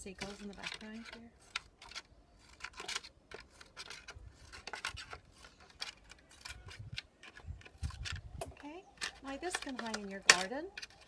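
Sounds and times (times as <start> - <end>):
scissors cutting plastic: 0.0 - 11.0.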